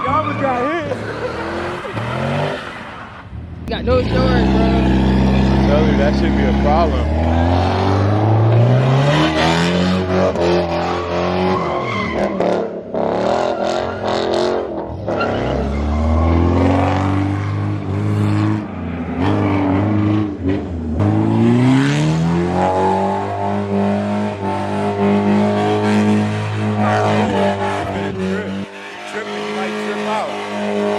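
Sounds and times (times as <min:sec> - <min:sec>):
tyre screech: 0:00.0 - 0:03.3, 0:15.0 - 0:17.7
car engine revving hard: 0:00.0 - 0:30.9.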